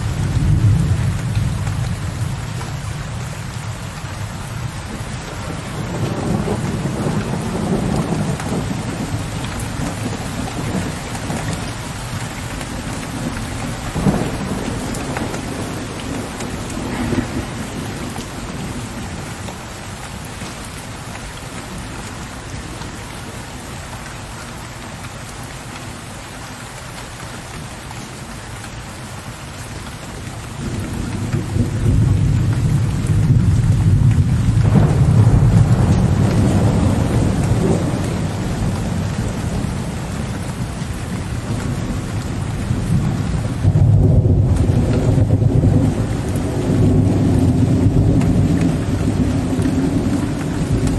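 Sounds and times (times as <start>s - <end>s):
rolling thunder: 0.0s - 19.4s, 30.6s - 50.9s
steady rain falling: 0.0s - 50.9s
sharp thunder cracks: 13.7s - 19.0s, 30.6s - 39.8s.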